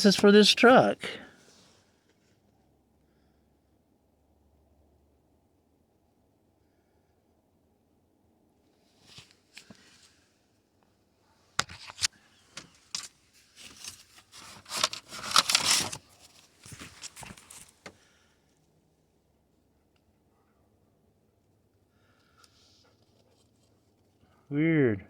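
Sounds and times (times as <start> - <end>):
papers rustling and crinkling: 11.6 - 18.0.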